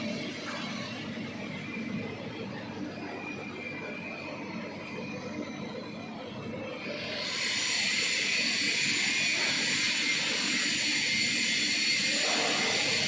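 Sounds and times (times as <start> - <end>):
welding arc hissing: 7.2 - 13.0.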